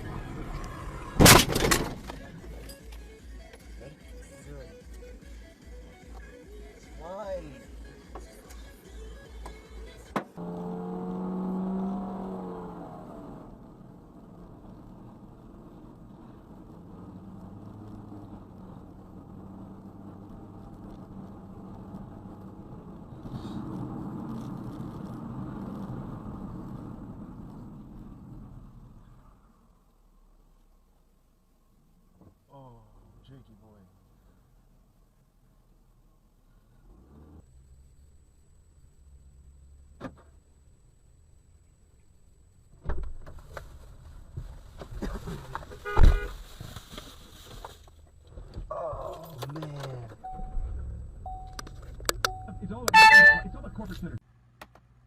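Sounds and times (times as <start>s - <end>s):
car engine: 0.0s - 55.0s
road noise: 0.0s - 55.0s
vehicle collision thump: 1.2s - 2.3s, 40.0s - 40.4s, 42.8s - 43.7s, 44.8s - 46.4s
loud horn blast: 52.8s - 53.8s.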